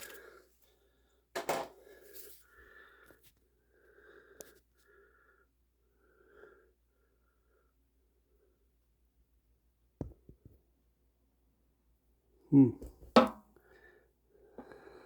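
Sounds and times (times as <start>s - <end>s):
person breathing with wheeze: 13.6s - 15.0s.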